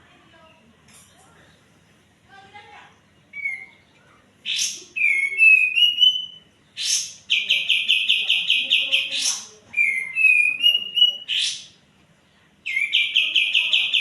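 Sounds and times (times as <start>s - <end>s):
harsh rasping bird notes: 4.4s - 11.8s
bulbul singing whistled notes: 4.5s - 11.7s, 12.7s - 14.0s.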